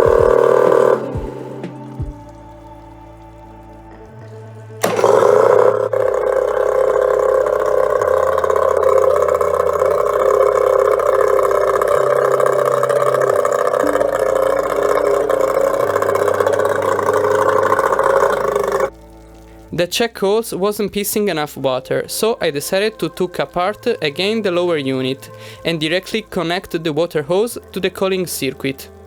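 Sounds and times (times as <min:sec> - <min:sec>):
outboard motor running: 0:00.0 - 0:02.4, 0:04.8 - 0:18.9.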